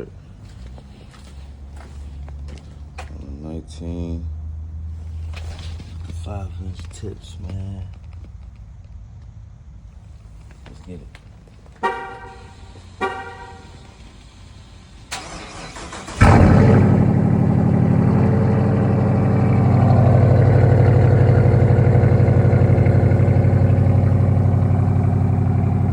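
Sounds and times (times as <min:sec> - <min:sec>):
car engine starting and idling: 0:00.0 - 0:09.0, 0:09.8 - 0:25.9
car horn toot: 0:11.8 - 0:14.0.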